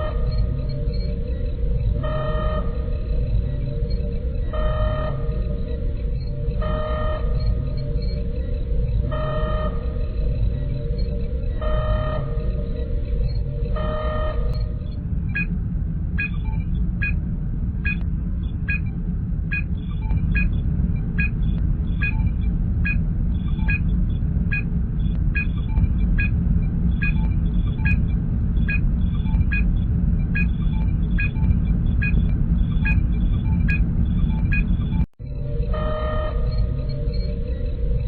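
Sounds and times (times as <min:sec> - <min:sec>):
low engine rumble: 0:00.0 - 0:38.0
electronic scanner beep: 0:27.0 - 0:28.0, 0:28.7 - 0:35.1.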